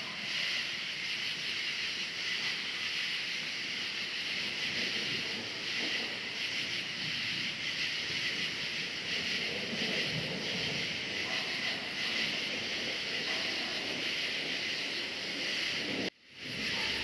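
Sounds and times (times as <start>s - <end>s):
crickets chirping: 0.0s - 17.0s
low rumble of thunder: 4.6s - 17.0s.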